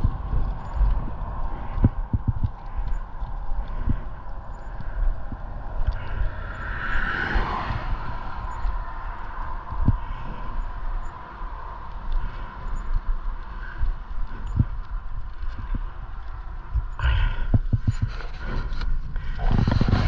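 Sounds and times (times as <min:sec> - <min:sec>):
steady low rumble: 0:00.0 - 0:20.0
car passing: 0:05.4 - 0:12.8.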